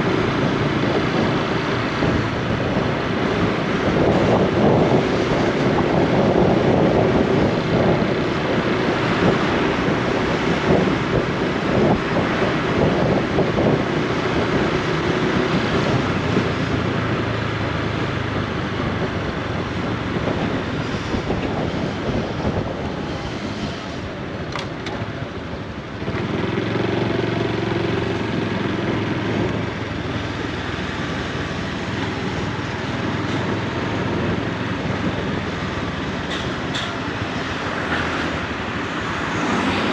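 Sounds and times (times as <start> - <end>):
rushing wind: 0.0 - 39.9
motorcycle engine running: 25.8 - 35.8.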